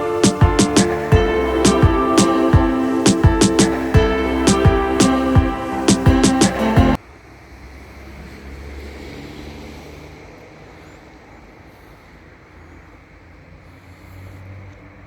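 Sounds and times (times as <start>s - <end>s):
background music: 0.0s - 7.0s.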